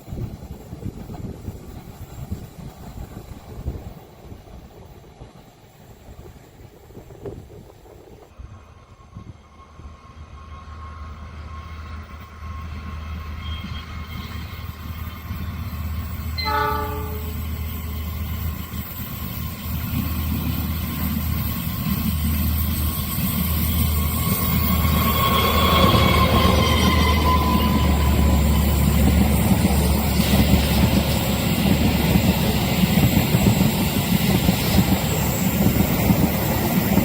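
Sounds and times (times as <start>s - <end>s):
rail and wheel noise: 0.0s - 37.0s
train rumble: 0.0s - 37.0s
locomotive horn blast: 16.4s - 17.4s.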